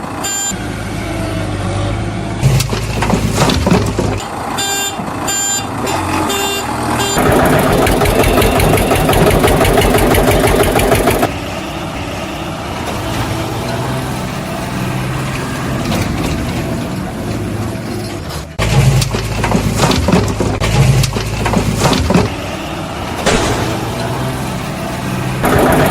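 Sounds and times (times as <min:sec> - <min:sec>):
vehicle engine running: 0:00.0 - 0:25.9
short beeps: 0:00.2 - 0:00.6, 0:04.6 - 0:07.2.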